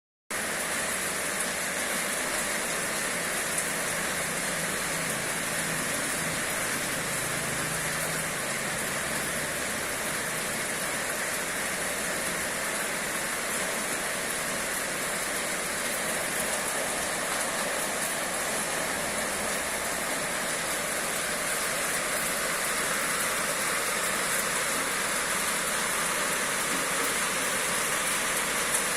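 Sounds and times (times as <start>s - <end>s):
steady rain falling: 0.3s - 28.9s.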